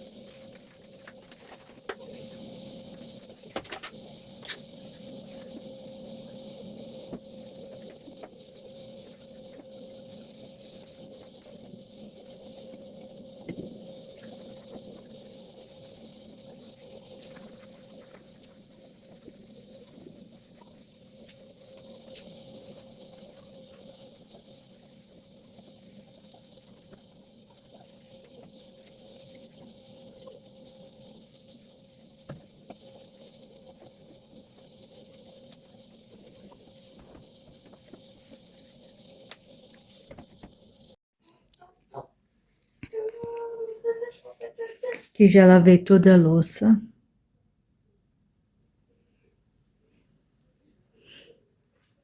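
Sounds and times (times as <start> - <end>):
steady hum with mid-pitched tone: 0.0 - 41.0.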